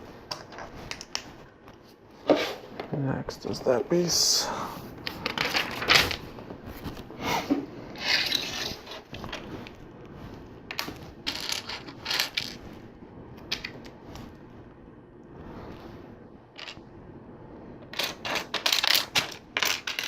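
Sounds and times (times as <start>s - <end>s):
plastic pieces clattering and clicking: 8.0s - 9.4s, 10.7s - 12.6s, 17.9s - 20.0s.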